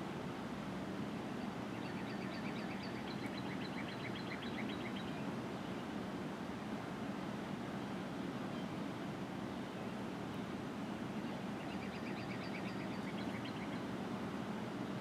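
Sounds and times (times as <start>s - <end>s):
songbird singing: 1.4s - 5.8s, 10.3s - 14.0s.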